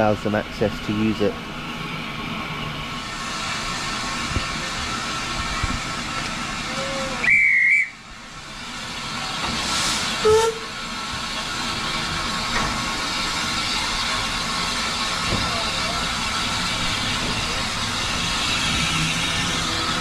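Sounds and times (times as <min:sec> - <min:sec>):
steam locomotive hissing: 0:00.0 - 0:20.0
lower train whistle: 0:06.7 - 0:08.0, 0:10.2 - 0:10.8
shrill train whistle: 0:06.7 - 0:08.0, 0:10.2 - 0:10.8.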